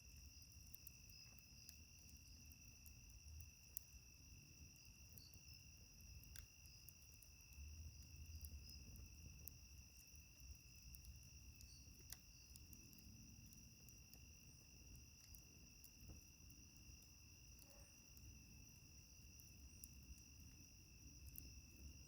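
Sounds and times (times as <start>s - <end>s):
crickets trilling: 0.0s - 22.0s
wood fire crackling: 0.0s - 22.0s.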